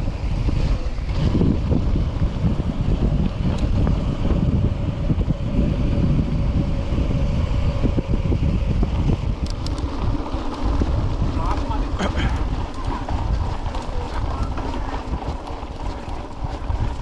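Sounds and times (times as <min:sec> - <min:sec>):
mountain bike rumble and rattle: 0:00.0 - 0:17.0
wind buffeting microphone: 0:00.0 - 0:17.0
sharp ticks: 0:09.3 - 0:10.1.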